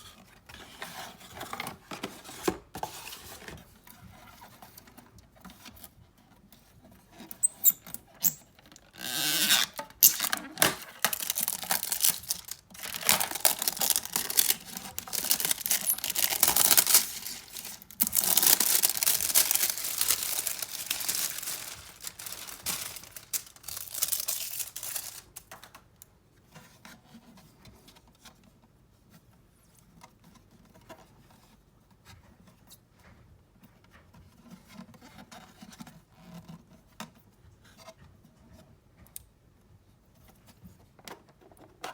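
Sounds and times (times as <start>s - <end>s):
packaging tearing and rustling: 7.4s - 25.8s.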